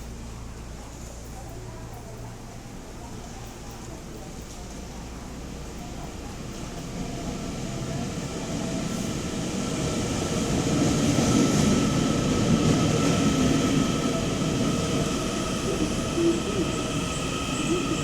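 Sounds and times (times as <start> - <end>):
electric train rumble: 4.2 - 18.0.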